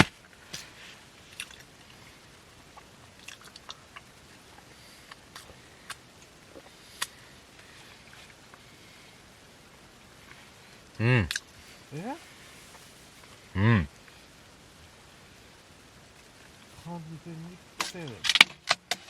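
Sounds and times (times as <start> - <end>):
small sharp clicks and crackles: 0.0 - 8.7, 17.8 - 19.0.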